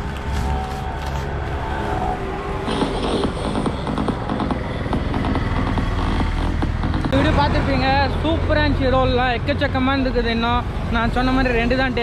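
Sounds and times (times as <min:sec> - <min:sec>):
road traffic rumble: 0:00.0 - 0:12.0
electronic dance music: 0:02.6 - 0:08.0.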